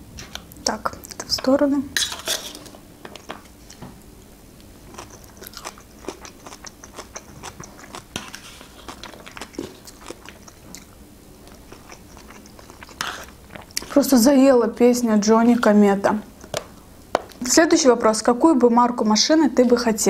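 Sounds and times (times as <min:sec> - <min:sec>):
chewing and crunching food: 0:04.6 - 0:14.3.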